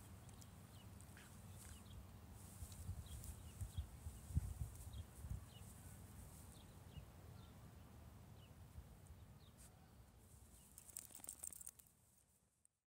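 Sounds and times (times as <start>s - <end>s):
soft rustles and clicks: 0.0s - 6.6s, 10.2s - 12.4s
small birds chirping: 0.0s - 7.6s, 8.4s - 11.8s.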